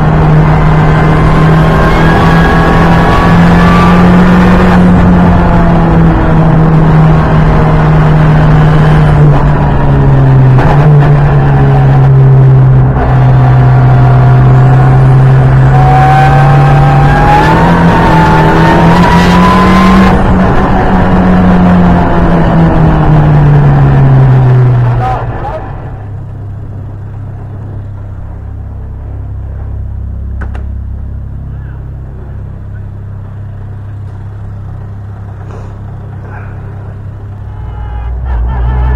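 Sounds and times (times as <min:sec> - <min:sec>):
car engine under load: 0:00.0 - 0:38.9
road and tyre noise: 0:00.0 - 0:38.9.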